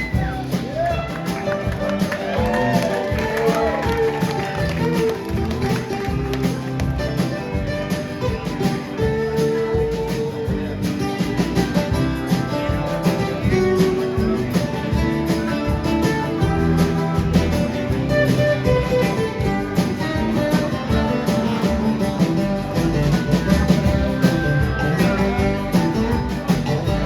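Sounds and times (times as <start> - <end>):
acoustic string band music: 0.0 - 27.0
guitar strummed and picked: 0.0 - 27.0.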